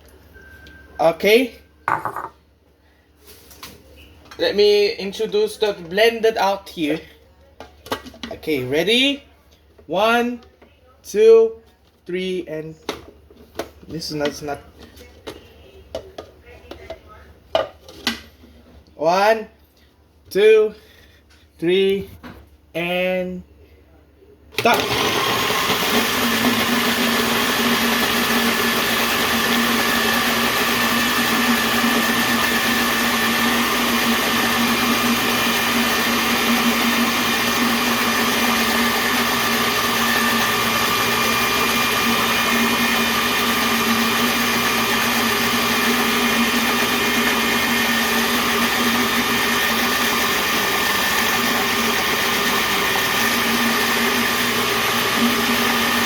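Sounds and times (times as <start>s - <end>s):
electric blender grinding: 24.6s - 56.0s.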